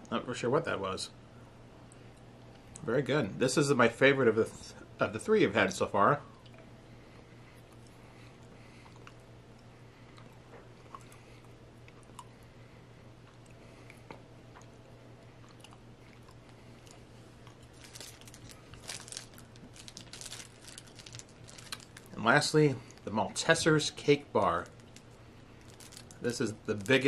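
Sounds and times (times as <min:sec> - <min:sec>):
low steady hum: 0:00.0 - 0:27.0
chewing mouth clicks: 0:07.6 - 0:12.4, 0:13.2 - 0:17.8
candy wrapper rustling: 0:16.3 - 0:23.1, 0:24.0 - 0:27.0.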